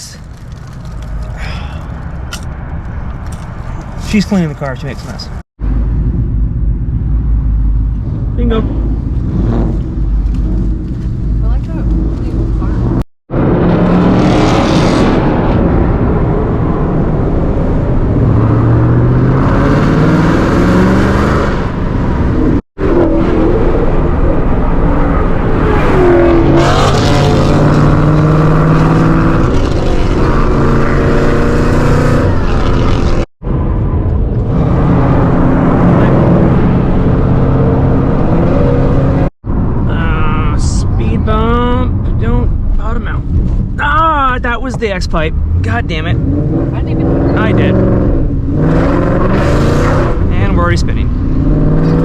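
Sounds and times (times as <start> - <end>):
car engine accelerating: 2.3 - 52.0.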